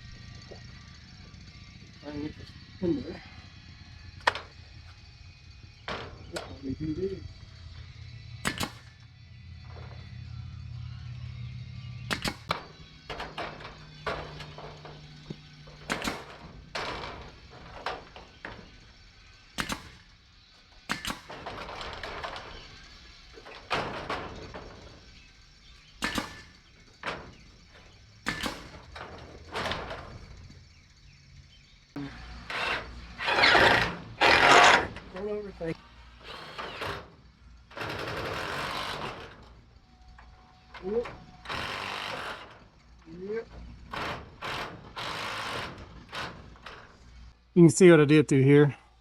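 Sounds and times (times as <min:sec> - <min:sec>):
short scraping: 0:32.1 - 0:35.2.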